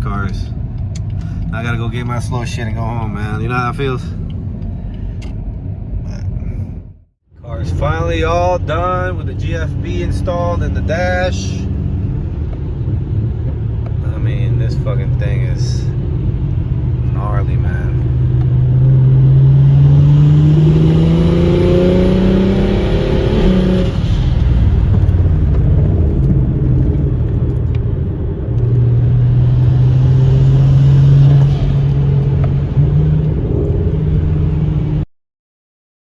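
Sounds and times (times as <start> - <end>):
car engine accelerating hard: 7.6 - 35.0.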